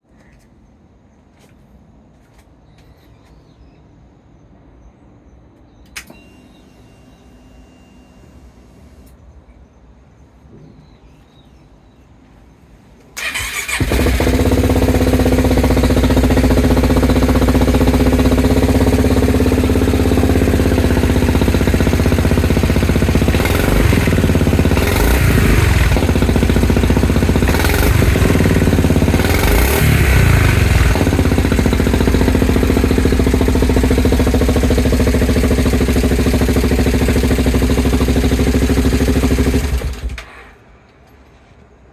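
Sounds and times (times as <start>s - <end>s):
scooter engine cranking: 13.2s - 40.2s
scooter engine idling and revving: 13.2s - 40.2s.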